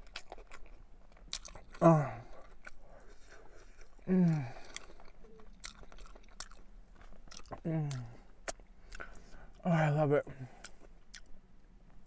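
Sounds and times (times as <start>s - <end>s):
person chewing with wet mouth clicks: 0.0s - 1.8s, 4.6s - 9.1s, 10.6s - 11.4s
person humming mmm: 4.0s - 4.8s, 7.6s - 8.2s.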